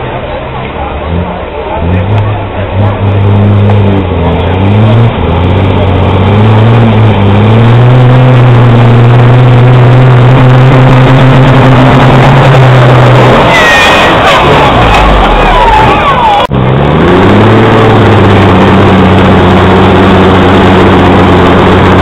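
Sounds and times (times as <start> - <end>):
truck diesel engine under load: 0.0 - 22.0.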